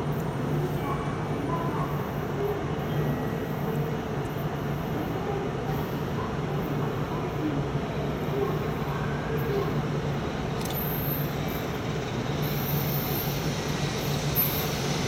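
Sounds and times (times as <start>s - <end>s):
distant freight train rumble: 8.1s - 15.0s.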